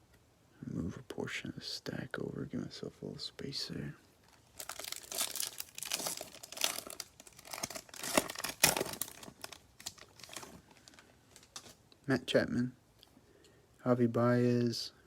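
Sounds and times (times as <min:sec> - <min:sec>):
foil wrapper crackling: 0:04.3 - 0:11.8
wrapper ripping: 0:04.3 - 0:11.8.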